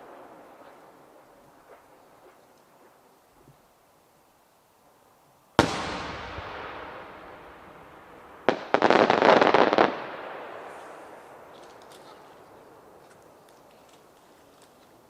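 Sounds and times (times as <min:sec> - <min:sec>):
firework boom: 0:05.6 - 0:08.6
firework crack: 0:05.6 - 0:14.8.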